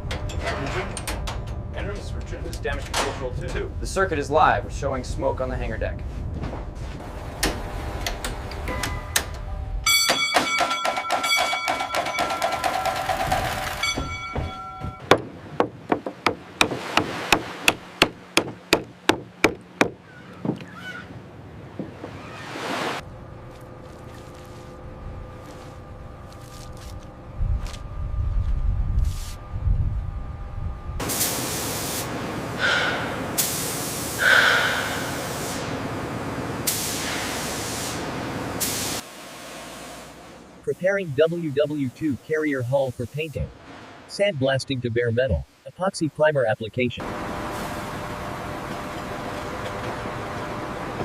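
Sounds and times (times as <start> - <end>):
sharp rhythmic knocks: 10.0 - 20.6
high-pressure spray hissing: 31.0 - 35.8, 36.6 - 40.2.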